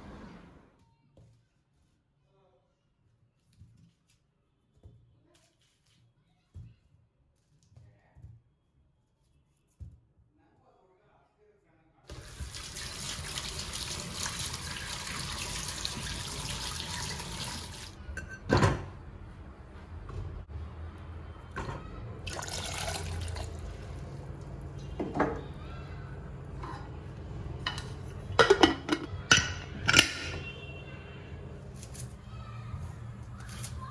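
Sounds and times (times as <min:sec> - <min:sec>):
water running from a tap: 0:12.1 - 0:18.0, 0:22.3 - 0:23.8.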